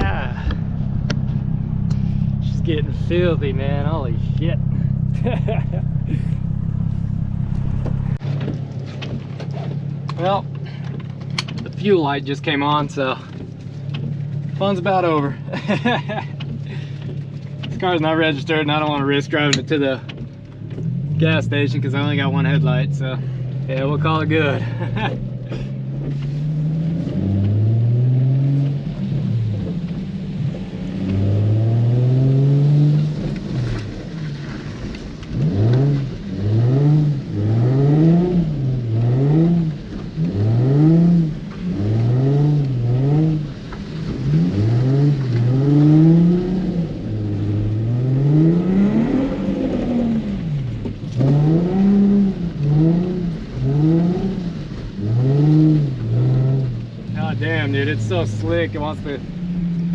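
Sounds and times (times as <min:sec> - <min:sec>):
car engine revving: 0:00.0 - 0:10.5, 0:11.4 - 0:59.9.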